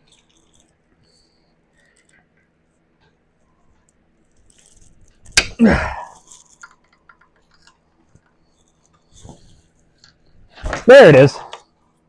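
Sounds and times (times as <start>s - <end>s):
sharp pop: 5.4s - 5.6s.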